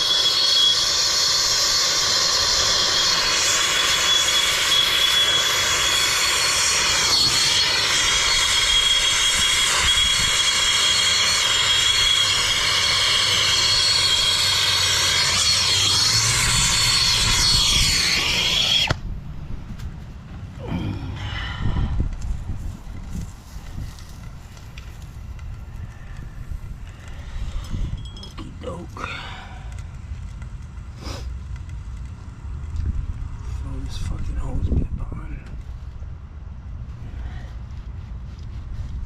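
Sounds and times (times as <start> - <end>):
faint whistle: 0.0 - 1.9, 2.5 - 18.9
torch flame rushing hiss: 0.0 - 19.2, 20.6 - 32.0.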